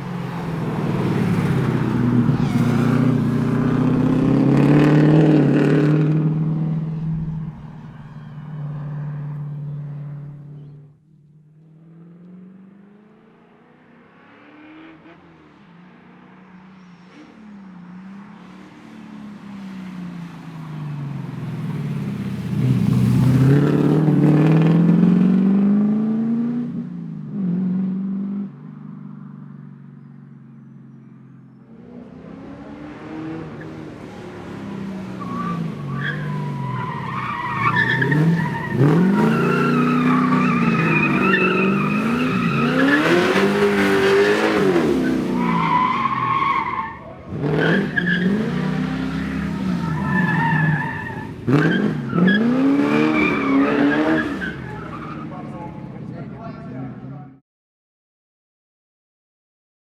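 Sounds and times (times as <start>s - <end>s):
rally car engine revving: 0.0s - 8.2s, 22.5s - 28.6s, 31.8s - 56.2s
tyres squealing: 1.3s - 4.0s, 35.1s - 55.6s.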